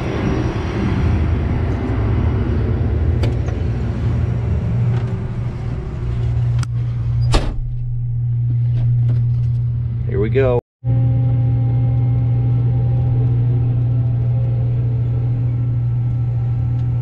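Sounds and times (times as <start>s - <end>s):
harvester engine hum: 0.0s - 17.0s
cab door shutting: 7.2s - 8.1s.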